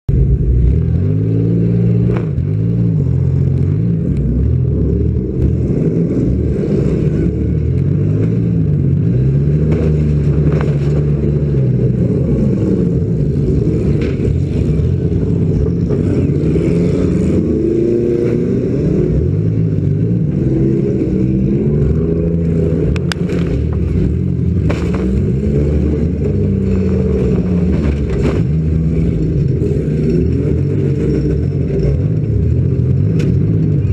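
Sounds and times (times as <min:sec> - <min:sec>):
car engine revving: 0:00.1 - 0:33.9
sharp knocks and clatters: 0:24.6 - 0:25.2.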